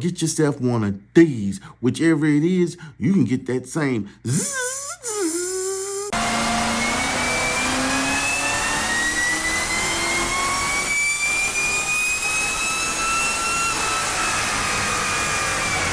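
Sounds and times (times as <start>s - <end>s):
supercharger whine: 6.1s - 15.9s.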